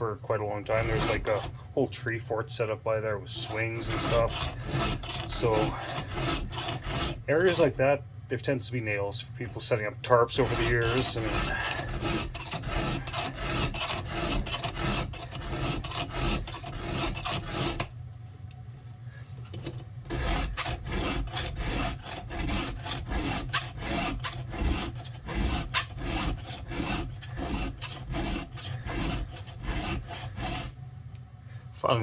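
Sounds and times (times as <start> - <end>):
file rasping on chainsaw chain: 0.7 - 1.5, 3.3 - 7.8, 10.3 - 17.9, 20.1 - 30.8.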